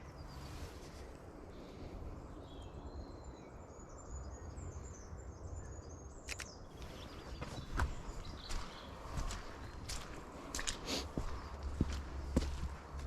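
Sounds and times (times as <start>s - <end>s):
songbirds chirping: 0.0s - 13.0s
sharp clicks: 6.2s - 6.6s
steady low rumble: 6.8s - 13.0s.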